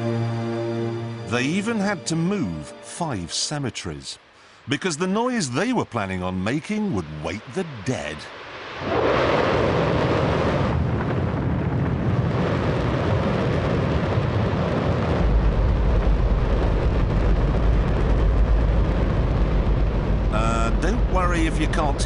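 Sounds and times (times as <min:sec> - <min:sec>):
deep rumble: 0:06.4 - 0:22.0
rocket engine firing: 0:08.7 - 0:22.0.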